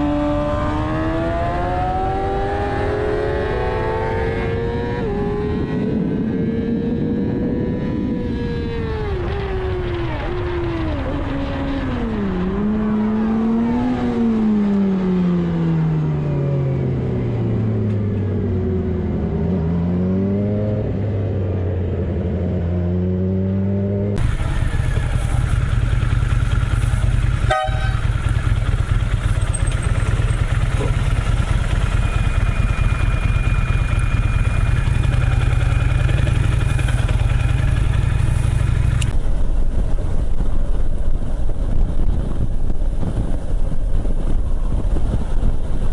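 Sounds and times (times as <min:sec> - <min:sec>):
road noise: 0:00.0 - 0:45.9
vehicle engine running: 0:24.2 - 0:42.4.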